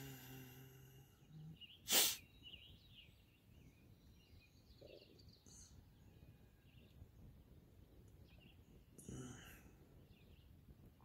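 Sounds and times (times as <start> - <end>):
faint birdsong: 0.0 - 11.0.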